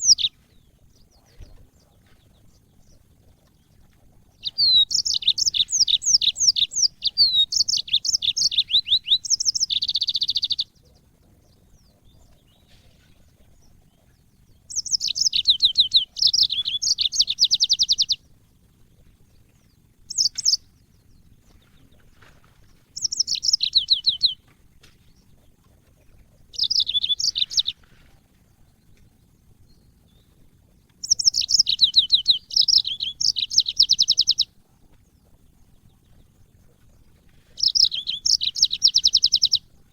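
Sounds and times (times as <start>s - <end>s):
canary singing chirping trills: 0.0s - 39.9s.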